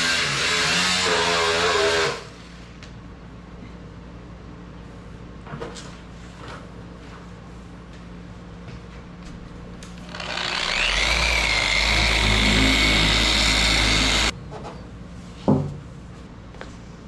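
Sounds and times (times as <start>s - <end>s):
small electric motor whining: 10.0s - 14.3s.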